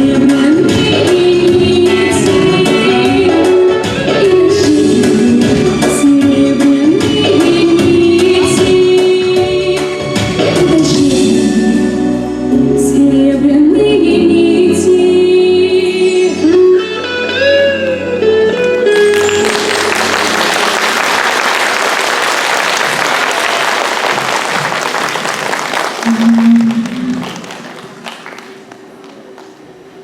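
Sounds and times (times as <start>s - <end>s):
song with instrumental accompaniment: 0.0s - 21.0s
audience applauding: 18.9s - 29.6s.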